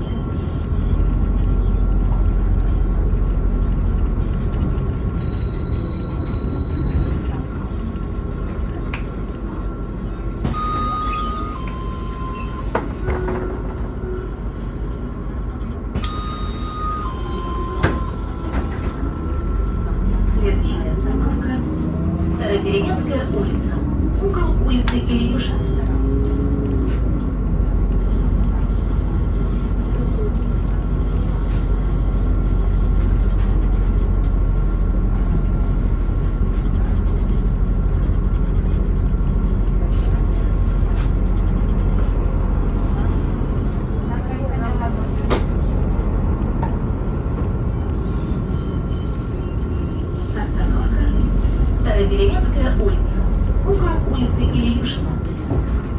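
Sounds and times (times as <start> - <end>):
bus engine and road rumble: 0.0 - 55.9.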